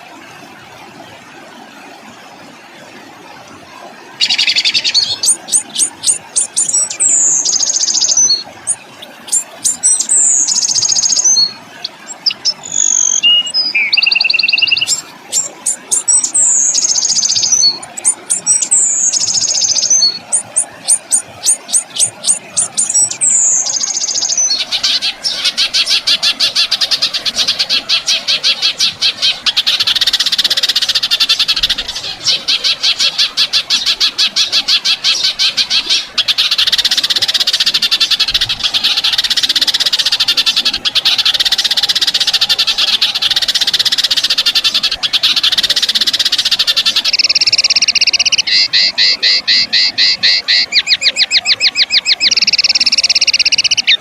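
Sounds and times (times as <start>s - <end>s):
songbird singing clicking notes: 12.1s - 24.6s, 45.4s - 54.0s.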